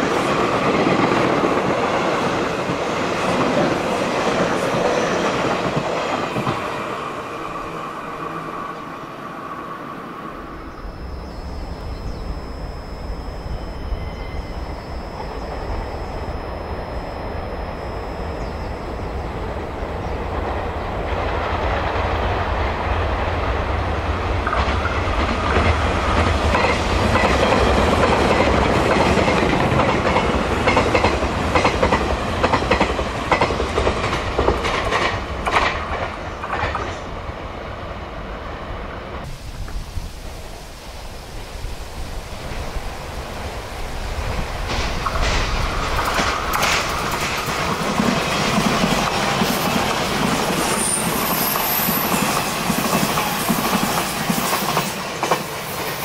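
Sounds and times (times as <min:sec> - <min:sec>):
train wheels rumbling on rail: 0:00.0 - 0:08.8, 0:09.4 - 0:39.8, 0:41.9 - 0:56.0
high whine: 0:07.2 - 0:22.8
wheels clacking over rail joints: 0:44.6 - 0:55.4.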